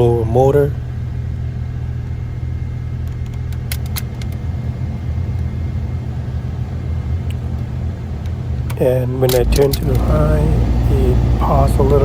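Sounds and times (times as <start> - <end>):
heater blower motor rumbling: 0.0 - 12.0
sharp clicks: 3.0 - 4.5, 7.3 - 10.2.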